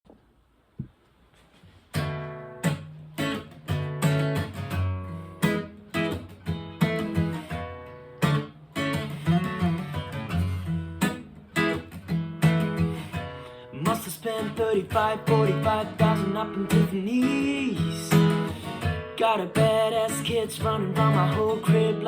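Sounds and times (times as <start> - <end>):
acoustic guitar strumming chords: 2.0 - 22.0.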